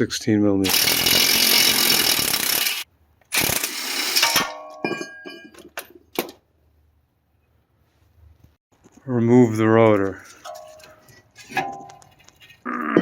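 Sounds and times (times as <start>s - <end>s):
impact wrench running: 0.7s - 4.4s.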